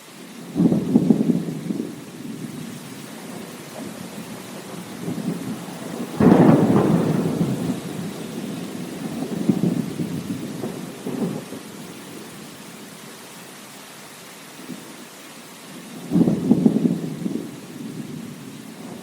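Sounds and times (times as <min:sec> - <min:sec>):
steady rain: 0:00.0 - 0:19.0
thunderclap and rolling rumbles: 0:00.5 - 0:12.5, 0:16.0 - 0:19.0.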